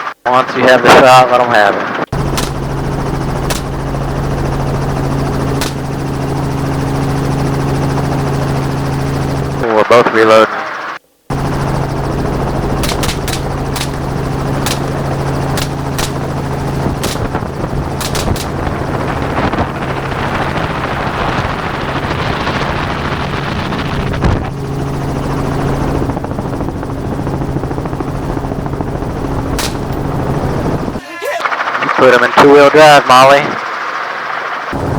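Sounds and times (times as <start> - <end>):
helicopter drone: 0.3 - 34.9
short sharp clicks: 2.4 - 2.7, 3.5 - 3.9, 12.8 - 14.1.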